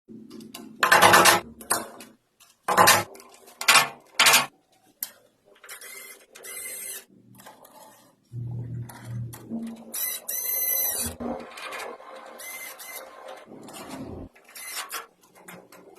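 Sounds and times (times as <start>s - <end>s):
metal rubbing on metal: 7.8s - 15.1s
metal parts clanking and scraping: 8.9s - 15.9s.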